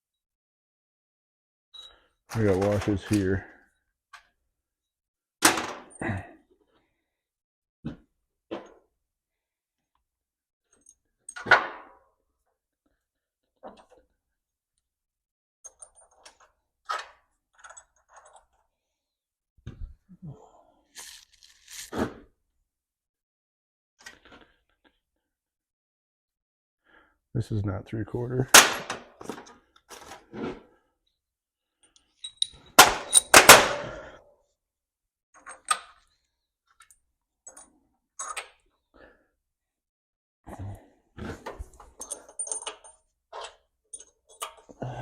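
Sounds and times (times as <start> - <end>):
metal nuts clinking: 32.2 - 33.4, 42.0 - 44.6.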